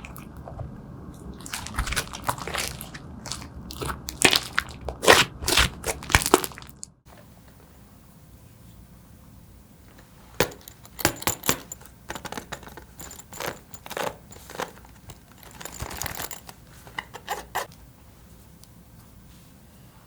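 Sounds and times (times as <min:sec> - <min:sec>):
small hard items clattering: 0:09.9 - 0:17.7.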